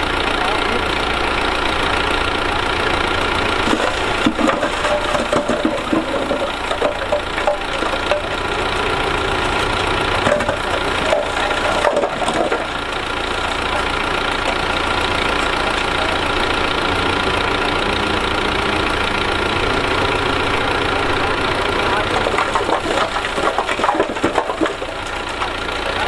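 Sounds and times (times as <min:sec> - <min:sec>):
heavy diesel engine running: 0:00.0 - 0:26.0.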